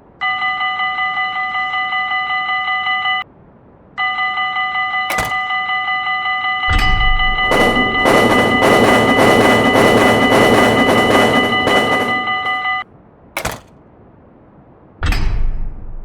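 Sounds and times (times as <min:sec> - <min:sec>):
sharp click: 0:05.1 - 0:05.5, 0:13.4 - 0:13.8
warning bell ringing rapidly: 0:06.7 - 0:12.8.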